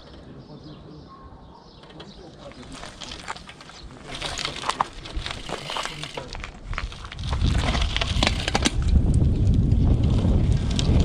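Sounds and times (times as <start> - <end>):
bike clicks and rattles: 1.8 - 11.0
wind buffeting microphone: 2.6 - 11.0.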